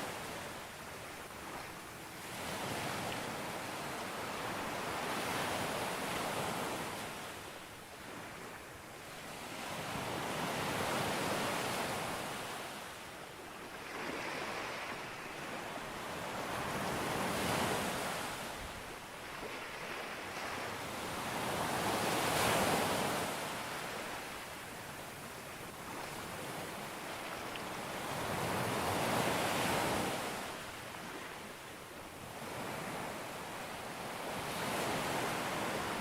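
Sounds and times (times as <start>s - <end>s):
sea waves breaking on beach: 13.7s - 24.8s.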